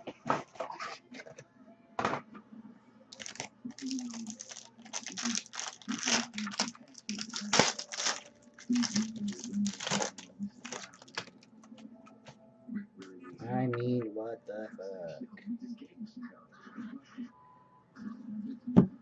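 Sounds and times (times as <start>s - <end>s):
plastic packaging tearing and crinkling: 3.1s - 11.4s.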